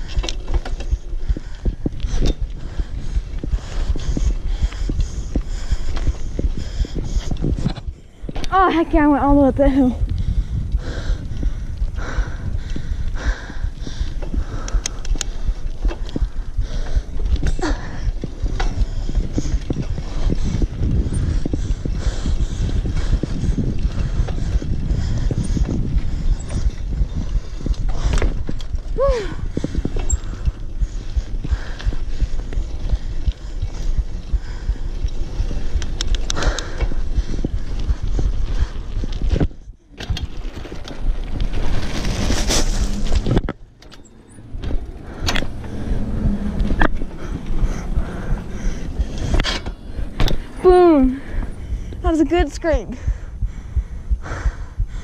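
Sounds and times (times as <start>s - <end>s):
person panting: 0.0s - 8.4s, 9.9s - 39.8s, 44.7s - 55.0s
bike knocks and rattles: 0.0s - 9.2s, 14.1s - 47.9s
steady low rumble: 0.0s - 55.0s
wind buffeting microphone: 0.0s - 55.0s.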